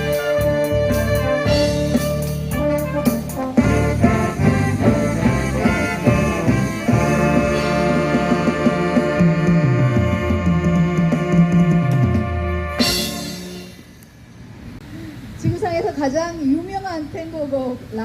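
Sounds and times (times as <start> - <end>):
wind instruments playing melody: 0.0 - 14.1
band backing: 0.0 - 15.0.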